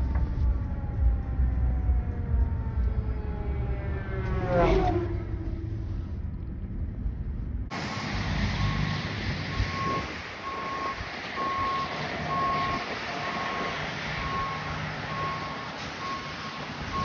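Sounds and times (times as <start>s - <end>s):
fire truck siren: 0.0s - 6.2s, 7.7s - 17.0s
truck engine rumble: 0.0s - 17.0s
reversing beeper: 8.6s - 17.0s.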